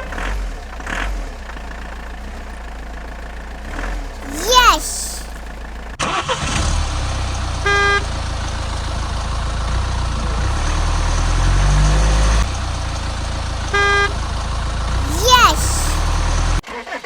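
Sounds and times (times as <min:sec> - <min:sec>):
vehicle engine running: 0:00.0 - 0:04.3, 0:05.2 - 0:06.0
short horn beeps: 0:13.8 - 0:14.2.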